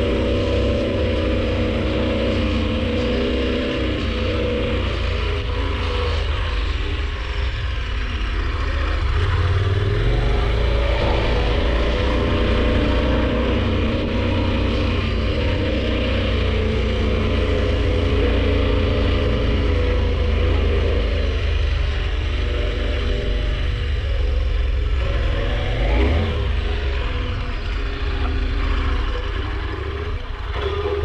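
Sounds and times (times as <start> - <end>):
motorcycle engine rumbling: 0.0 - 31.0.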